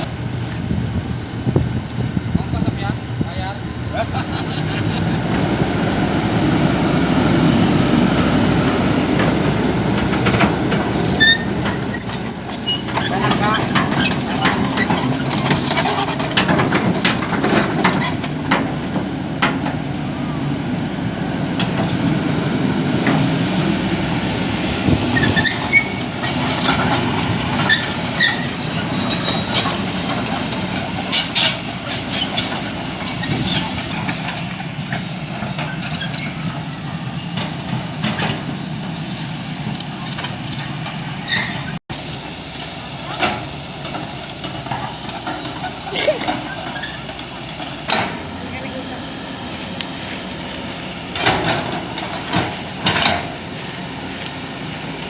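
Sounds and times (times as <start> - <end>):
excavator engine running: 0.0 - 55.0
short squeaks: 11.0 - 16.3, 25.1 - 30.2, 31.0 - 34.5, 35.6 - 38.4, 40.0 - 41.8, 44.3 - 47.8
metallic clanks and knocks: 11.5 - 19.8.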